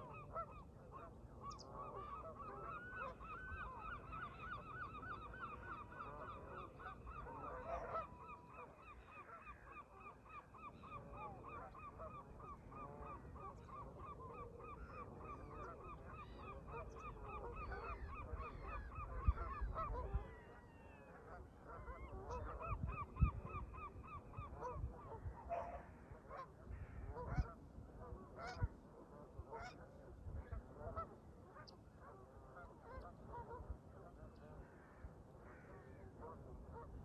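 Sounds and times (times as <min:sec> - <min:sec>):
geese honking: 0:00.0 - 0:22.8
wind rumbling on microphone: 0:16.0 - 0:26.0, 0:26.6 - 0:31.2.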